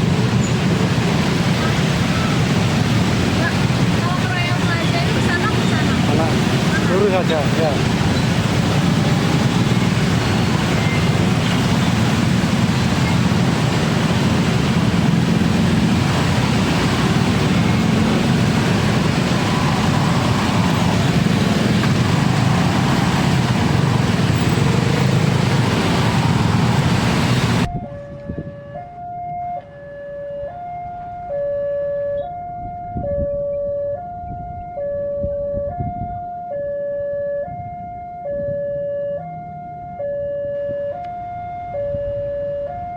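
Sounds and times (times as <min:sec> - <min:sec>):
train wheels rumbling on rails: 0:00.0 - 0:27.7
two-tone crossing alarm: 0:07.8 - 0:42.9.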